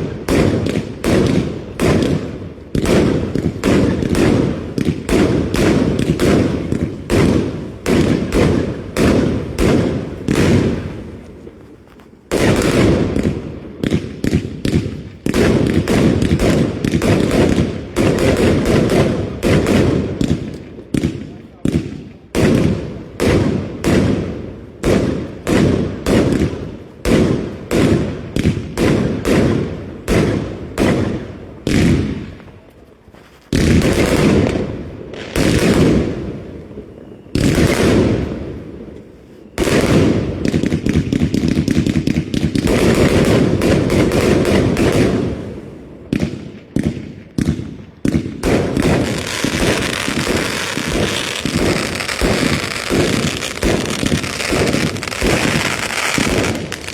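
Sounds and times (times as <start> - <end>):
fireworks banging: 0.0 - 56.9.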